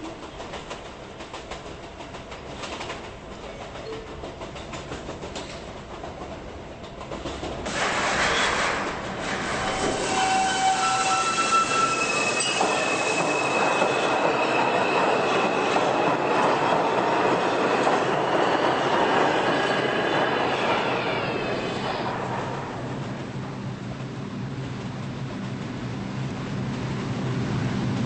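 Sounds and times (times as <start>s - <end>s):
subway train rumble: 0.0s - 28.0s
wheel squeals: 9.4s - 17.0s.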